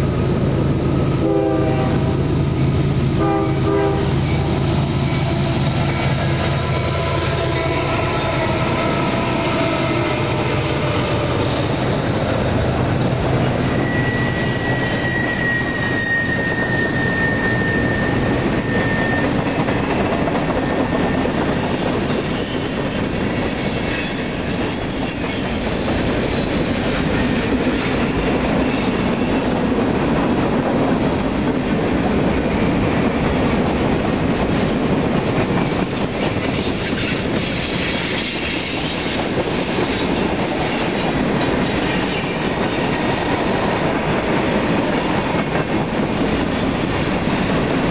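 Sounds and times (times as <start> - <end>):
train wheels rumbling on rail: 0.0 - 47.9
thin wheel squeals: 13.5 - 19.6, 20.6 - 26.8, 31.0 - 31.8, 39.9 - 41.1, 45.8 - 47.6.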